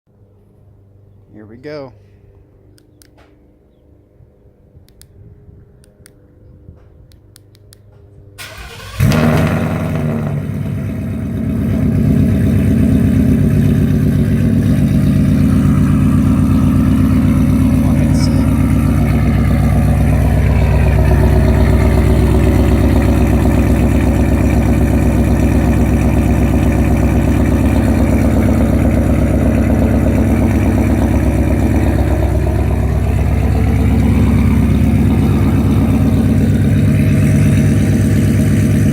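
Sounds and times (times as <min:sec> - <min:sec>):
car engine starting and idling: 0:08.4 - 0:38.9.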